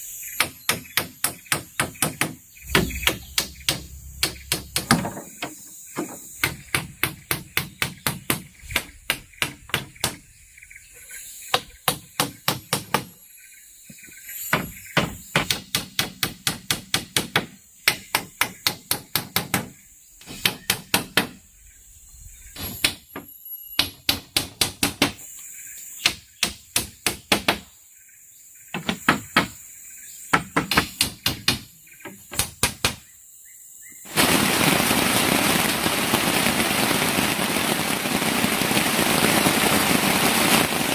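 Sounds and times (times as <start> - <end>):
loud steady hiss: 0.0 - 27.6, 28.8 - 40.9
tool striking bamboo: 0.4 - 10.2.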